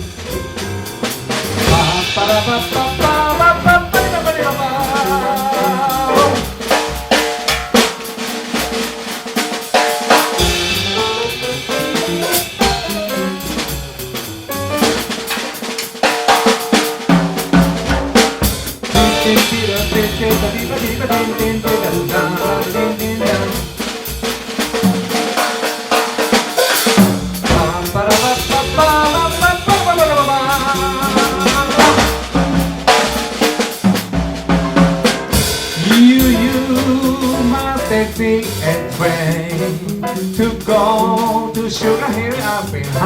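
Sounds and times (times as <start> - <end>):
drum kit snare and cymbals: 0.0 - 43.0
jazz band playing: 0.0 - 43.0
brass melody: 0.2 - 6.8, 10.3 - 15.6, 18.8 - 23.9, 27.5 - 33.0.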